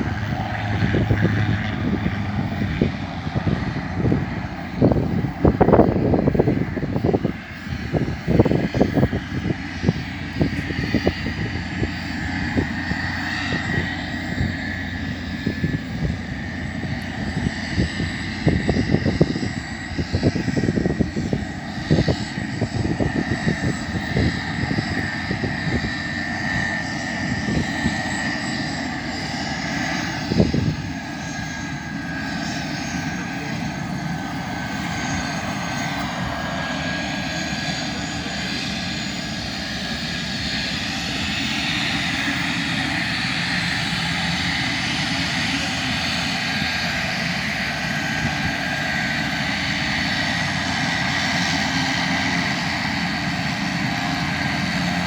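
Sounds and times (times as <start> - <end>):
low buffeting: 0.0 - 38.6
turboprop engine whine: 0.0 - 55.0.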